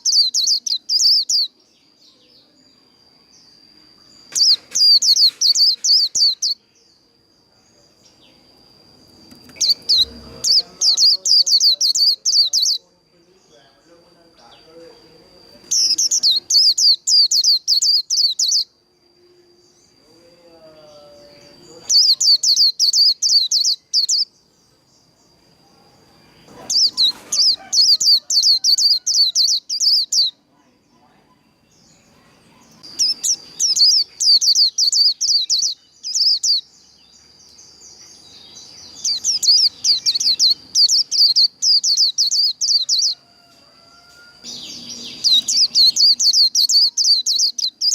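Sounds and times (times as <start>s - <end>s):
faint steady high tone: 0.0s - 29.0s
bird singing high sweeping notes: 8.0s - 24.4s, 44.4s - 47.9s
bird singing rapid high notes: 9.4s - 12.8s.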